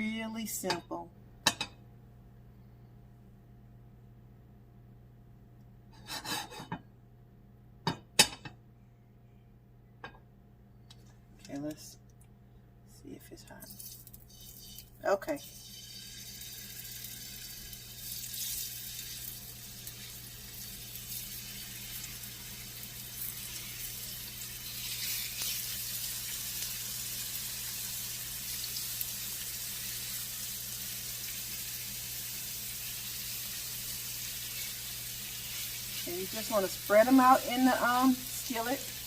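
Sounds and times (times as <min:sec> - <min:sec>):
chicken sizzling in hot oil: 0:13.8 - 0:39.0.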